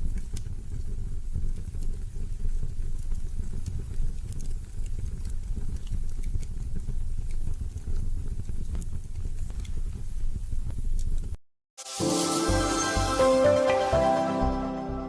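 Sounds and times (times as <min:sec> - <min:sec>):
fire crackling and popping: 0:00.0 - 0:11.4
low rumble of flames: 0:00.0 - 0:11.4.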